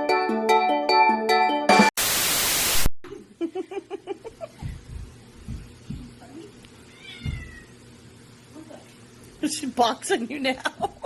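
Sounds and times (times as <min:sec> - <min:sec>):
static hiss burst: 0:02.0 - 0:02.9
soft thumps: 0:04.6 - 0:06.2.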